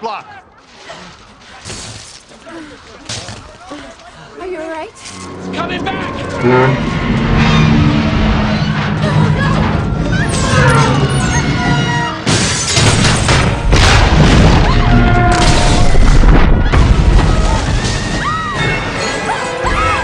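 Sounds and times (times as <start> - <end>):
dramatic orchestral music: 4.6 - 12.4
deep booming rumble: 5.4 - 12.2
metal and glass crashing: 12.2 - 20.0.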